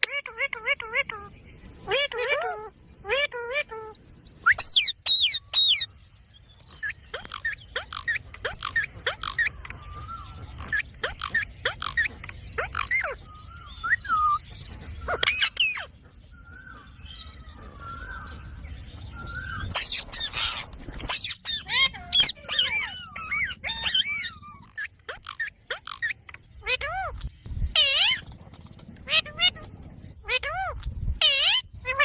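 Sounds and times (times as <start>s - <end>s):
parrots squawking and chirping: 0.0s - 6.0s, 6.6s - 32.0s.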